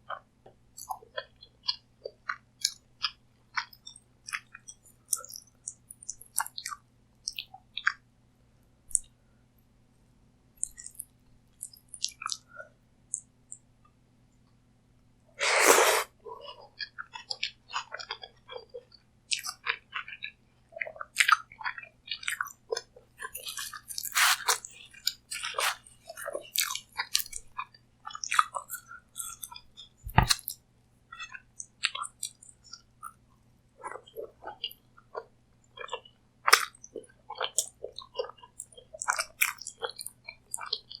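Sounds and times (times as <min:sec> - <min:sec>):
chewing with wet clicks: 0:00.8 - 0:08.0, 0:10.6 - 0:12.5, 0:16.8 - 0:25.5, 0:26.2 - 0:33.2, 0:33.8 - 0:41.0
crunchy bite: 0:24.0 - 0:24.6.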